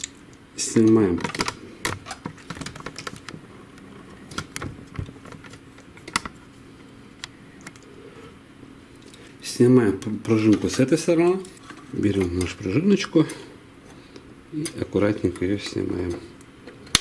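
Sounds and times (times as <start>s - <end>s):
plastic parts clicking and tapping: 0.8s - 3.4s, 4.3s - 6.4s.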